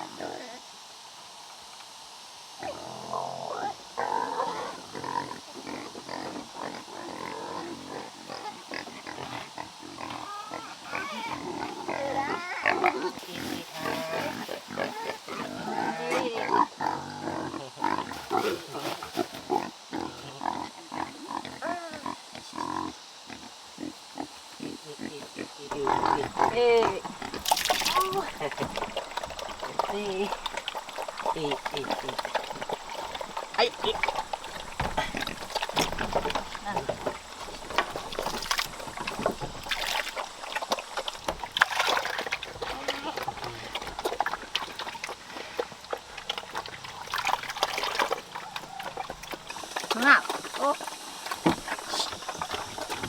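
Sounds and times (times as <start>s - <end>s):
animal grunts and squeals: 2.6s - 53.0s
water sloshing and splashing: 13.2s - 15.6s, 25.7s - 53.0s.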